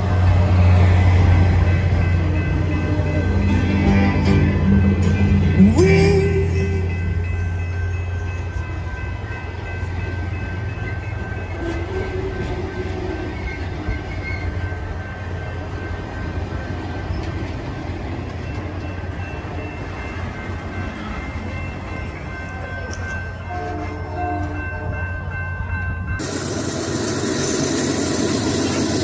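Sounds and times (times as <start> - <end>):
train rumbling by: 0.0 - 29.0.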